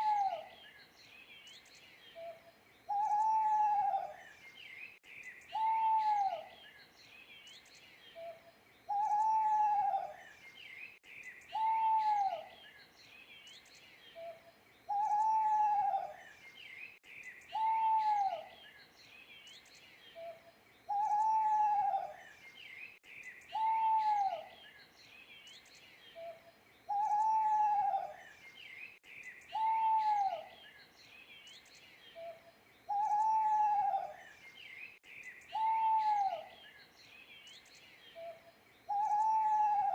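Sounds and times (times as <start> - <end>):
owl hooting: 0.0 - 0.5, 2.2 - 4.2, 5.5 - 6.5, 8.2 - 10.2, 11.5 - 12.5, 14.2 - 16.2, 17.5 - 18.5, 20.2 - 22.2, 23.5 - 24.5, 26.2 - 28.2, 29.5 - 30.5, 32.2 - 34.2, 35.5 - 36.6, 38.2 - 39.9
small birds chirping: 0.0 - 39.9.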